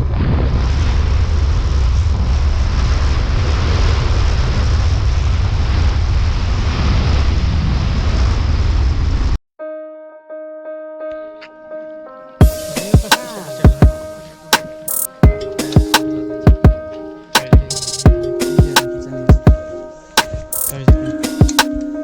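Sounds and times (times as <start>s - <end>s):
loud steady rumbling: 0.0s - 9.4s.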